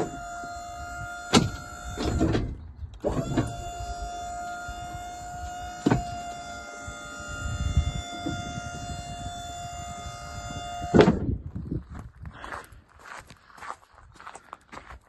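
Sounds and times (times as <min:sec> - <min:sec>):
hydraulic pump motor whining: 0:00.0 - 0:11.4
liftgate clunk: 0:01.0 - 0:08.8.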